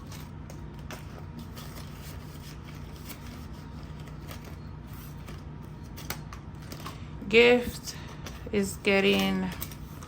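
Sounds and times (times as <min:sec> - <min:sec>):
paper banknotes rustling: 0:00.0 - 0:10.0.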